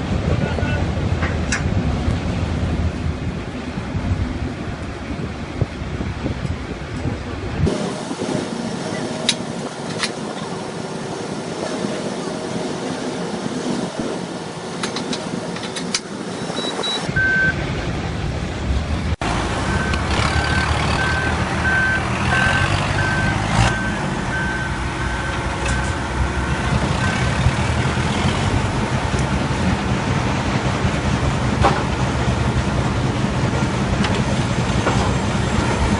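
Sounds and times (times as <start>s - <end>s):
diesel machinery rumbling: 0.0s - 35.9s
reversing alarm beeping: 16.3s - 17.6s, 19.6s - 27.3s.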